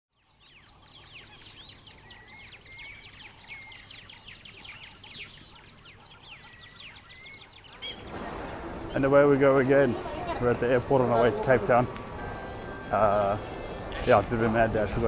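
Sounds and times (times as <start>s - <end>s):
birds chirping and whistling: 0.1s - 10.1s
fast run of bird notes: 6.5s - 15.0s.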